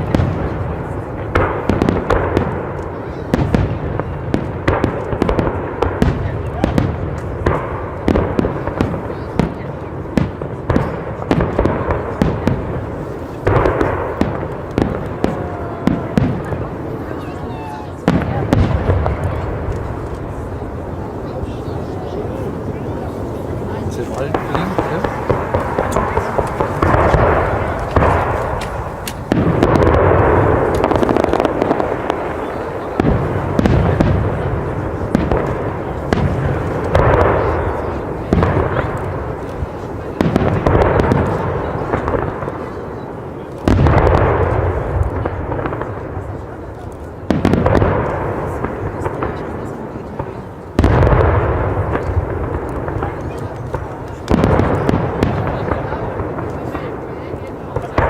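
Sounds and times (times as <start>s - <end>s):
fireworks bangs: 0.0s - 58.0s
fireworks crackling and rumble: 0.0s - 58.0s
firework shell bursts: 23.1s - 37.4s.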